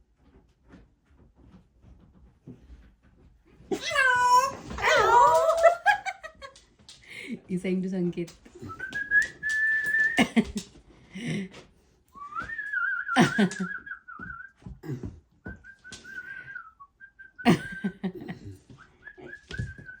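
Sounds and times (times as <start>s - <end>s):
person whistling: 8.6s - 10.2s, 12.2s - 14.6s, 15.5s - 17.5s.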